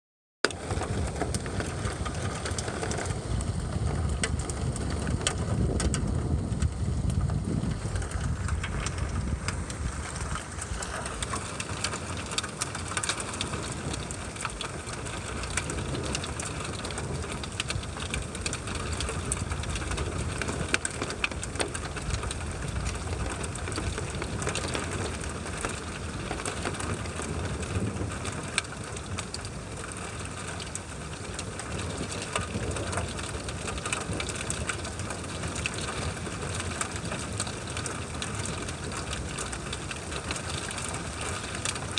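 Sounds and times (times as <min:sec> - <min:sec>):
raindrops tapping: 0:00.4 - 0:41.9
steady rain: 0:00.4 - 0:41.9
low uneven rumble: 0:00.6 - 0:41.9.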